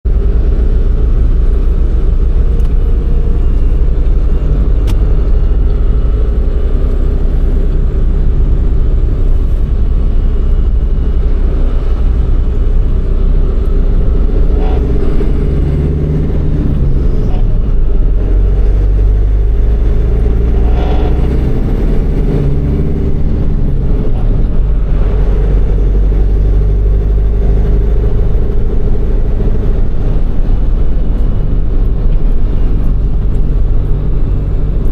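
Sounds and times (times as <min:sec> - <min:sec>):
truck diesel engine drone: 0:00.0 - 0:34.9.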